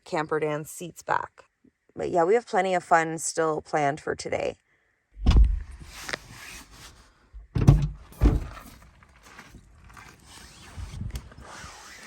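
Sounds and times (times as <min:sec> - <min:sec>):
dull thunks: 0:05.2 - 0:05.9, 0:07.3 - 0:08.8.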